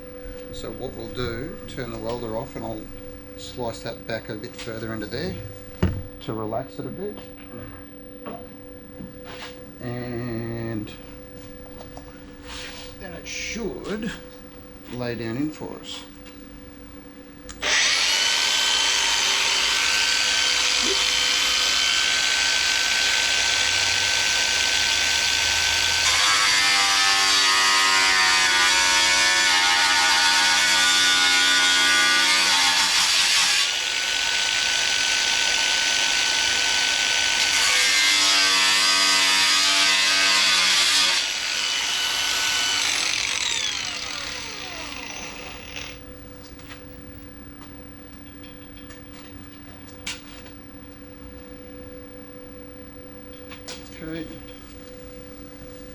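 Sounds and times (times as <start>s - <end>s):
cut-off wheel cutting steel: 17.6s - 46.0s
cut-off wheel whining: 41.2s - 46.0s.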